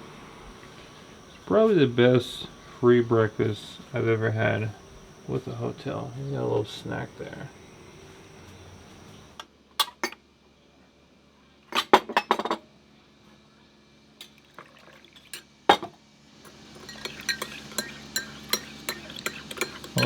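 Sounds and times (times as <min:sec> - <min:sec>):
cutlery and dishes clinking: 0:16.8 - 0:20.0.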